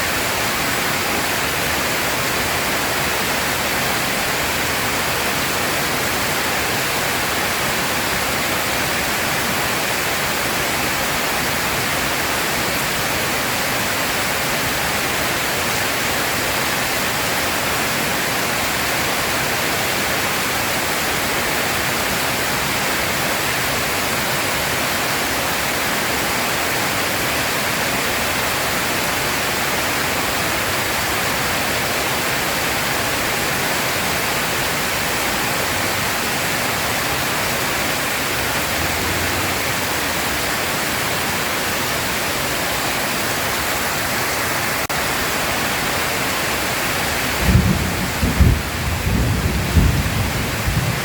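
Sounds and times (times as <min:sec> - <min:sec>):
heavy rain falling: 0:00.0 - 0:51.0.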